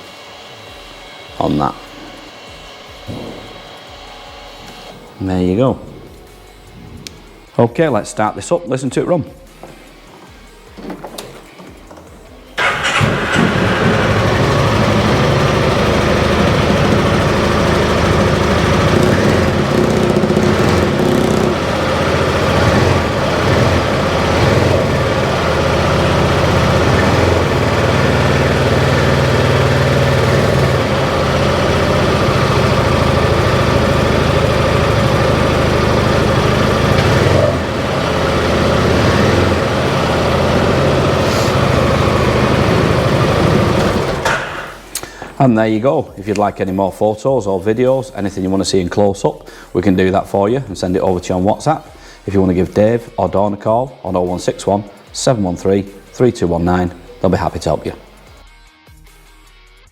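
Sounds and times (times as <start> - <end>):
scooter engine idling: 1.5 - 6.7, 10.8 - 45.4.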